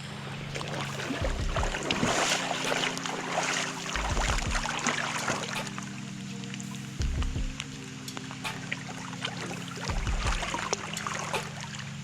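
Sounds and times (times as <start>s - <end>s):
water splashing and dripping: 0.3s - 12.0s
low thumps: 1.2s - 2.2s, 4.0s - 4.8s, 7.0s - 7.7s, 9.9s - 10.6s.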